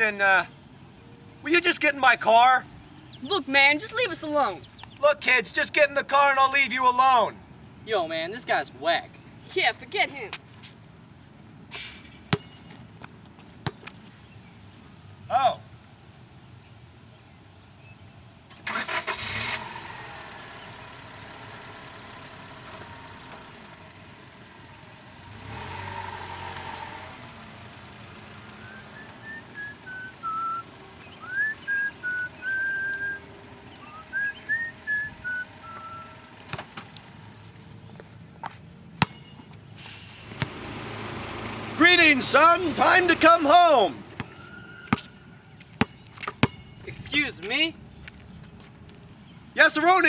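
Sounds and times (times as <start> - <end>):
car engine running: 19.6 - 37.9, 40.1 - 44.4
whistled notes: 28.6 - 36.2, 43.6 - 45.4.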